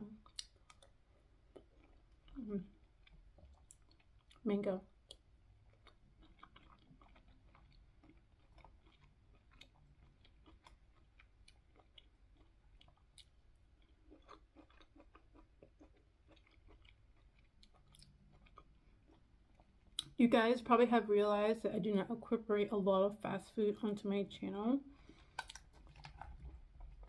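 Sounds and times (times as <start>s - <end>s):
faint chewing of soft fruit: 0.0s - 20.2s, 24.9s - 27.0s
wet mouth clicks: 25.3s - 26.4s.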